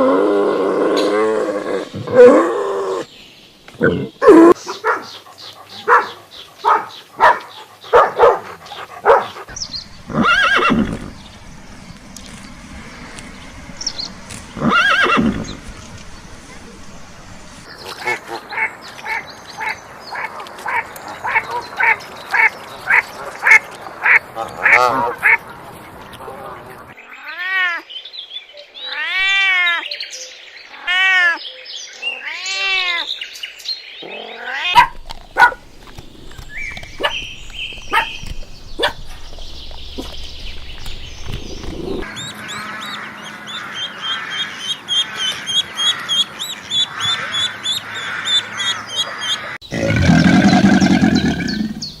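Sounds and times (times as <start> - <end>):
long rising and falling calls: 9.5 - 17.7, 34.8 - 52.0.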